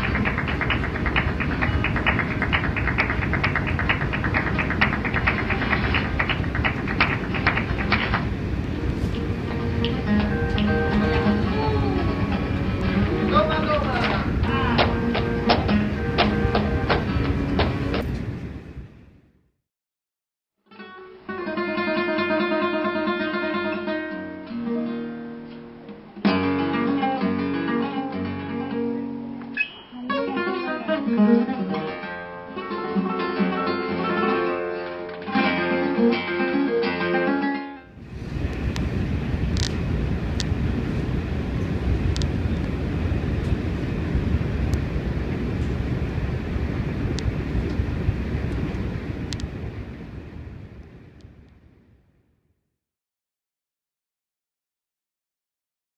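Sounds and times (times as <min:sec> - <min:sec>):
rapid train wheel clicking: 0:00.0 - 0:08.4
acoustic guitar picked and strummed: 0:00.0 - 0:18.1, 0:20.7 - 0:38.3
train rumbling: 0:00.0 - 0:19.0, 0:38.0 - 0:51.2.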